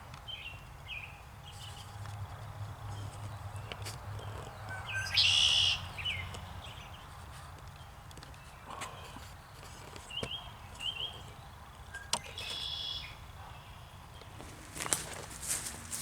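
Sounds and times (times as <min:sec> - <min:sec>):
small birds chirping: 0:00.0 - 0:16.0
dead leaves crunching and rustling: 0:14.3 - 0:16.0.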